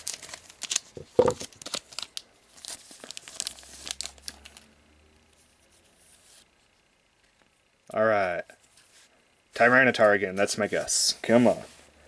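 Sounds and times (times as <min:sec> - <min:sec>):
foil wrapper crinkling and tearing: 0:00.0 - 0:04.7.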